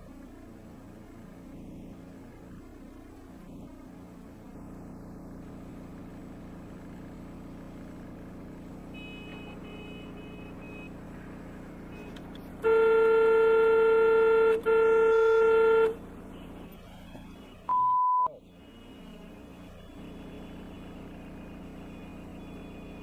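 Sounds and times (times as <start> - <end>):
car driving hum: 0.0 - 23.0
car horn blaring: 8.9 - 10.9, 11.9 - 18.2
faint high beeps: 17.2 - 19.2.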